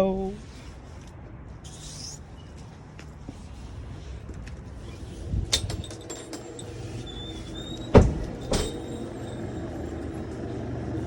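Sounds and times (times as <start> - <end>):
steady low hum: 0.0 - 11.0
faint squeak: 1.6 - 2.7, 6.7 - 10.1
door thumping shut: 7.9 - 8.8.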